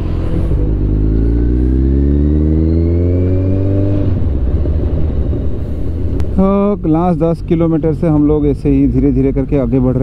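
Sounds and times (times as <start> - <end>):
motorcycle engine accelerating: 0.0 - 6.2.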